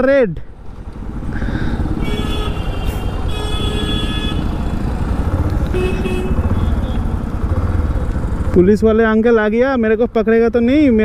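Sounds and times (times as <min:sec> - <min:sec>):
vehicle horn: 0:02.0 - 0:04.8, 0:05.7 - 0:07.2
motorcycle engine running: 0:03.8 - 0:08.7.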